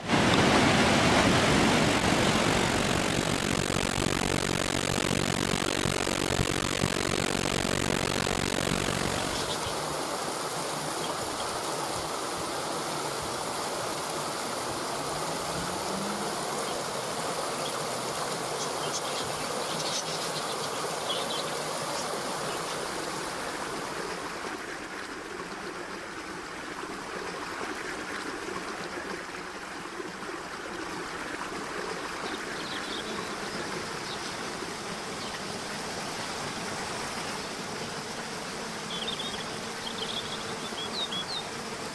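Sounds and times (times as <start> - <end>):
faint high chirps: 2.4 - 9.6.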